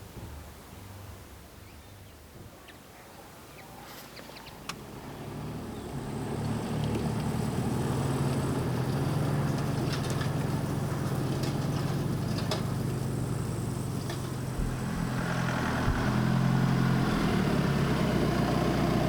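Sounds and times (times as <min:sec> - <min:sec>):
vehicle engine humming: 0:04.2 - 0:19.0.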